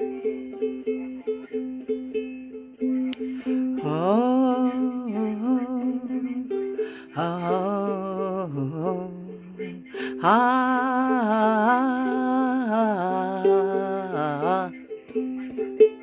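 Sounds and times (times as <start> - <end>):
plucked ukulele: 0.0 - 16.0
person humming a slow tune: 3.1 - 15.7.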